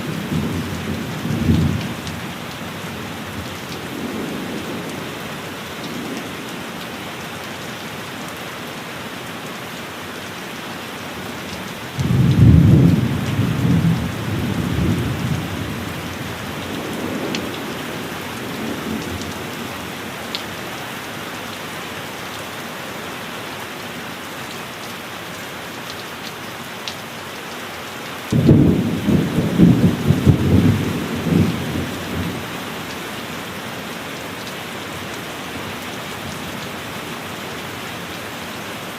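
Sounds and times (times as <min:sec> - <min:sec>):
heavy rain: 0:00.0 - 0:38.9
thunder claps: 0:28.3 - 0:32.4.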